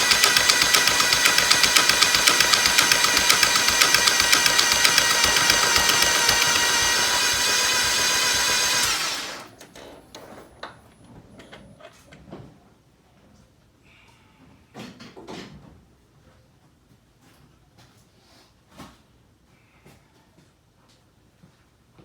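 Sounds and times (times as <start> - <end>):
engine cranking on starter: 0.0 - 10.2.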